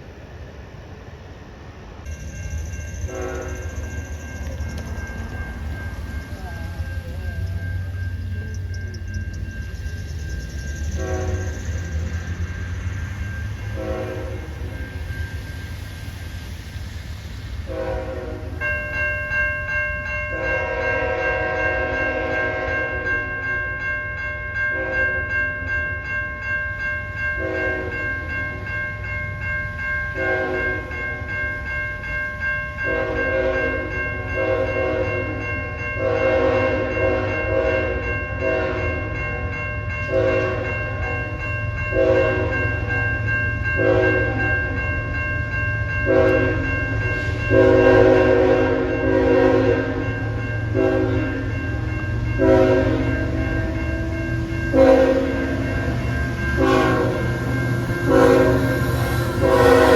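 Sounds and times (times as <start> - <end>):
low rumble of train: 0.0 - 59.9
crossing bell ringing: 1.4 - 59.9
locomotive horn blasts: 3.1 - 3.8, 11.0 - 11.6, 13.7 - 14.7, 17.7 - 18.6, 20.3 - 23.1, 27.4 - 28.0, 30.2 - 30.8, 32.8 - 35.2, 36.0 - 39.5, 40.1 - 41.3, 41.9 - 42.6, 43.8 - 44.4, 46.1 - 46.6, 47.5 - 50.0, 50.7 - 51.4, 52.4 - 53.8, 54.7 - 55.6, 56.6 - 57.3, 58.0 - 59.9.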